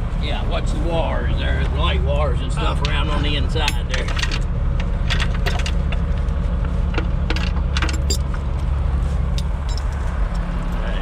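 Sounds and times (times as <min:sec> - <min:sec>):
low engine rumble: 0:00.0 - 0:11.0
metal chain clinking and rattling: 0:07.3 - 0:08.4, 0:09.3 - 0:10.9.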